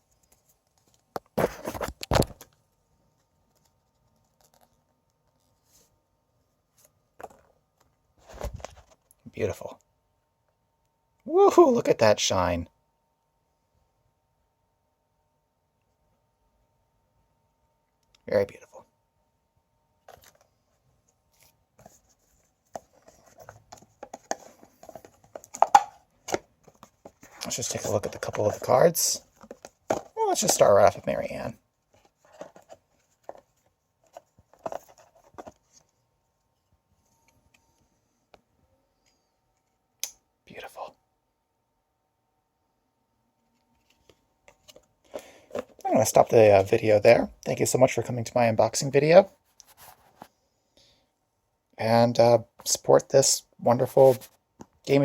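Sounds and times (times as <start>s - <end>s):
cards and packaging handled: 0.0s - 6.0s, 6.7s - 9.2s, 20.0s - 37.9s, 43.5s - 47.6s, 49.4s - 50.4s, 53.7s - 55.0s
foil cards rustling and clattering: 0.2s - 2.5s, 22.7s - 35.7s.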